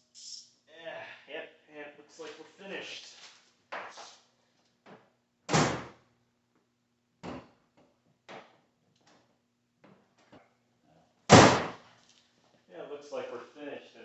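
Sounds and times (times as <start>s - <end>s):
heavy door slam: 5.5s - 5.9s, 11.3s - 11.8s.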